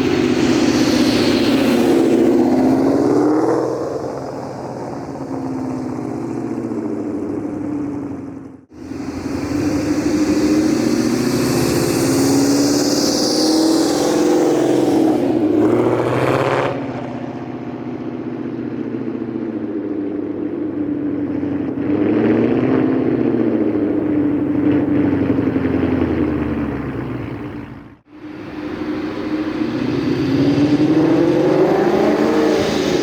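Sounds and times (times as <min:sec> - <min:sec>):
high whine: 0:00.0 - 0:06.2, 0:08.7 - 0:19.7, 0:28.1 - 0:33.0
car engine accelerating: 0:00.0 - 0:33.0.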